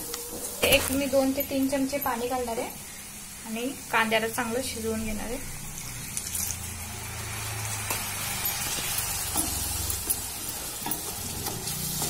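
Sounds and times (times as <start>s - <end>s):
masala sizzling in a pan: 0.0s - 12.0s.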